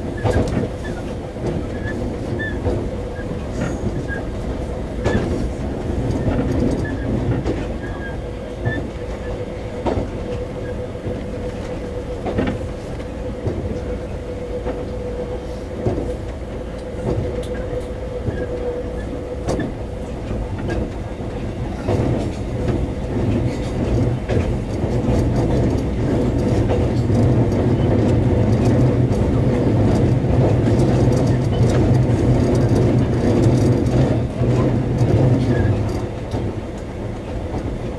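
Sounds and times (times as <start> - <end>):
constant whine: 0.0 - 37.9
train rumble: 0.0 - 37.9
wheels clicking over track: 16.8 - 37.8.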